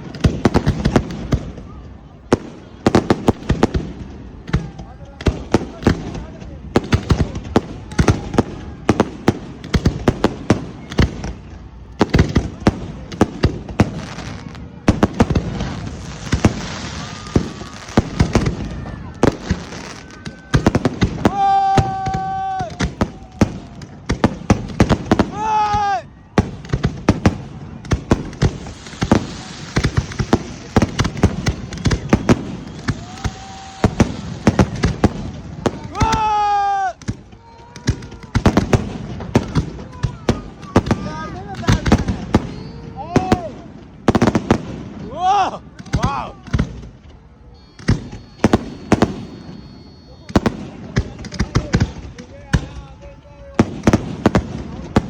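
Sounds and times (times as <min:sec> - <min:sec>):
fireworks banging: 0:00.0 - 0:55.0
whistle-like tone: 0:42.4 - 0:42.9, 0:47.5 - 0:51.5.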